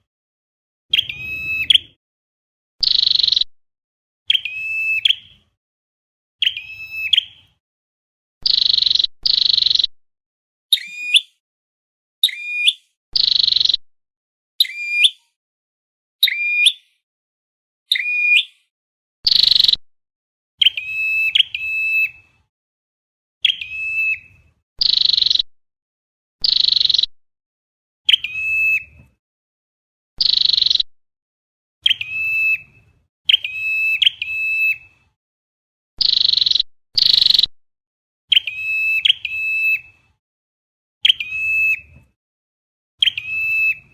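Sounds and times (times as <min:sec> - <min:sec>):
bird chirps bending in pitch: 0:00.9 - 0:02.0, 0:30.2 - 0:30.9
lower whistled bird call: 0:00.9 - 0:02.0, 0:02.8 - 0:03.5, 0:04.3 - 0:05.5, 0:06.4 - 0:07.6, 0:08.4 - 0:09.9, 0:10.7 - 0:11.4, 0:12.2 - 0:13.8, 0:14.6 - 0:15.4, 0:16.2 - 0:17.0, 0:17.9 - 0:19.8, 0:20.6 - 0:22.3, 0:23.4 - 0:25.5, 0:26.4 - 0:27.1, 0:28.1 - 0:28.9, 0:30.2 - 0:30.9, 0:31.8 - 0:32.7, 0:33.3 - 0:34.9, 0:36.0 - 0:37.5, 0:38.3 - 0:40.0, 0:41.0 - 0:41.9, 0:43.0 - 0:43.9.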